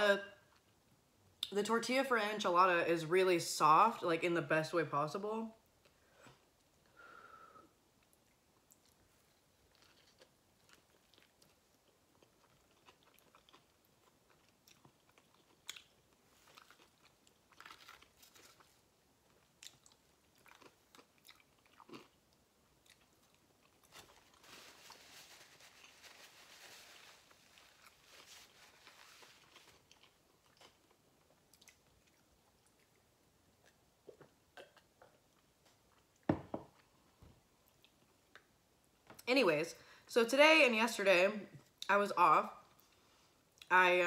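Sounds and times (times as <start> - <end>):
paper napkin rustling: 23.9 - 29.8.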